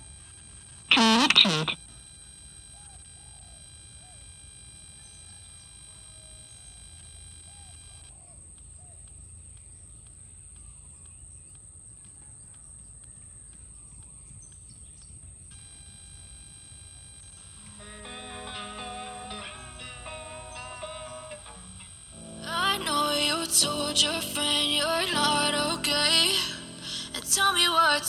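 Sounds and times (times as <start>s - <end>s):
steady high whine: 0.0s - 8.0s, 15.6s - 28.0s
faint bird chirps: 0.9s - 1.8s.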